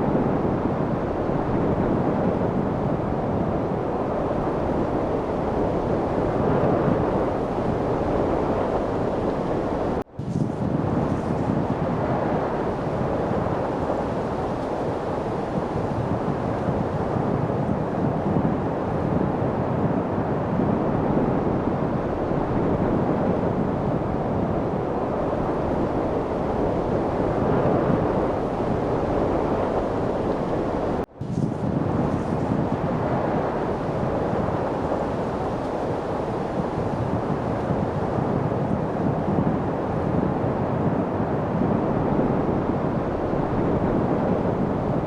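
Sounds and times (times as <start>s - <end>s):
light wind: 0.0s - 45.0s.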